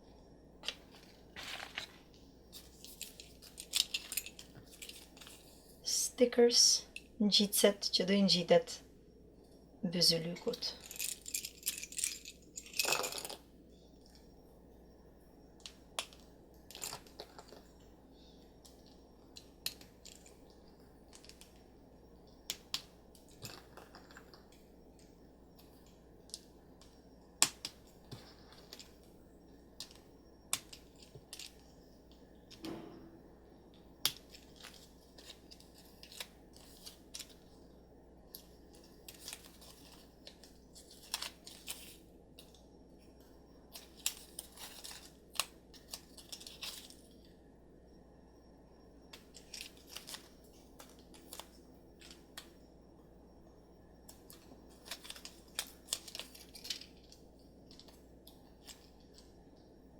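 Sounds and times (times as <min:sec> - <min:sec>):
hands handling plastic toy: 0:00.6 - 0:05.6, 0:34.1 - 0:37.5, 0:38.4 - 0:42.6, 0:43.7 - 0:47.2, 0:54.1 - 0:59.3.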